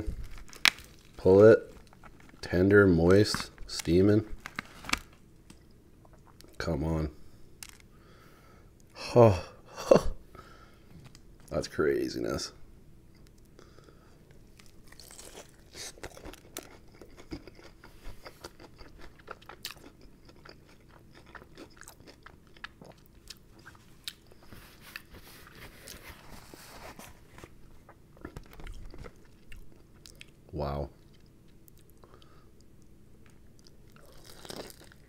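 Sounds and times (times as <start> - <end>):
crunchy chewing: 14.5 - 26.0, 33.6 - 35.0.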